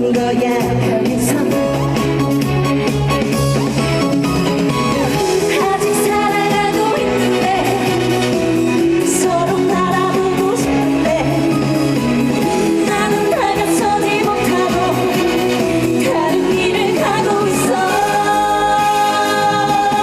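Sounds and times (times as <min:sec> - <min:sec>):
backing band with guitar: 0:00.0 - 0:20.0
person singing amplified: 0:12.8 - 0:20.0.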